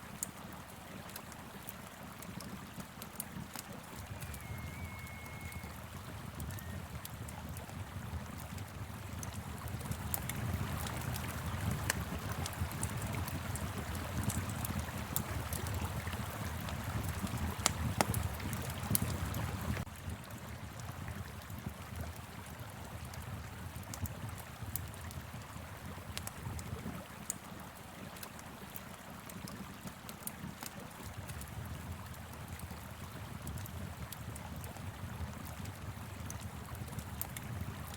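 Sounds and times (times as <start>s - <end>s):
river flowing: 0.0s - 21.5s
wood fire crackling and popping: 0.1s - 37.9s.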